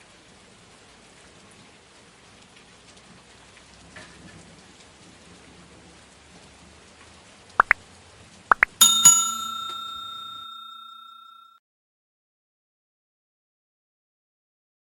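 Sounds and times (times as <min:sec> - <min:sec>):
steady rain falling: 0:00.0 - 0:08.5.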